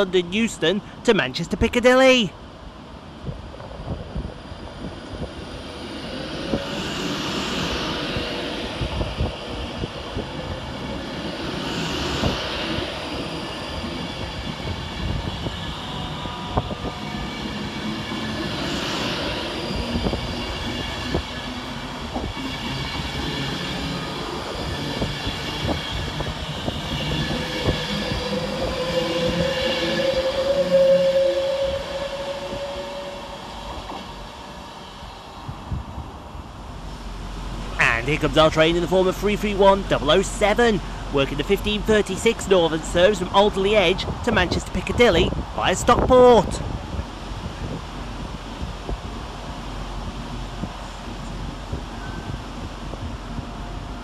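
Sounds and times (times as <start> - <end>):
electric train running past: 2.3 - 54.0
rising tone: 36.9 - 39.2.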